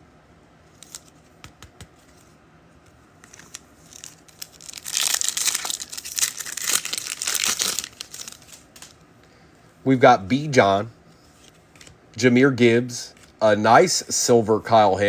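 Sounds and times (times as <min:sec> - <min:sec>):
wrapper tearing and crinkling: 0:03.3 - 0:09.0.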